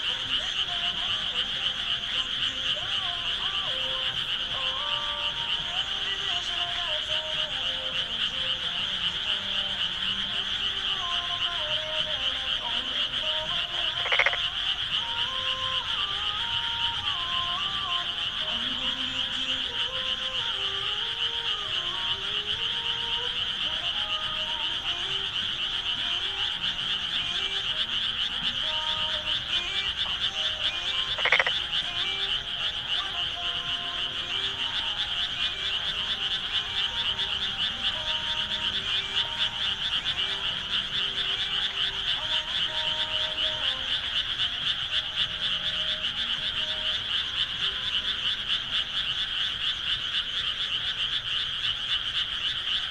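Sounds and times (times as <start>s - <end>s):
frogs trilling in chorus: 0.0s - 52.9s.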